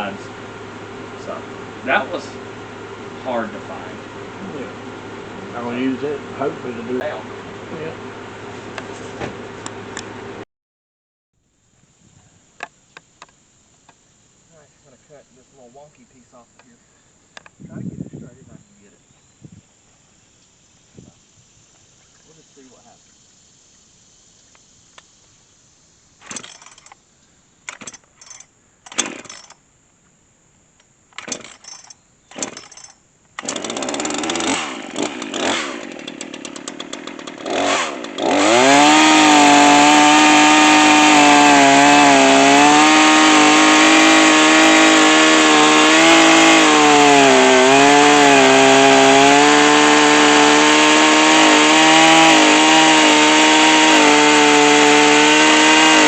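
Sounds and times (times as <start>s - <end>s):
chainsaw cutting wood: 26.2s - 27.0s, 27.7s - 29.6s, 31.1s - 56.0s.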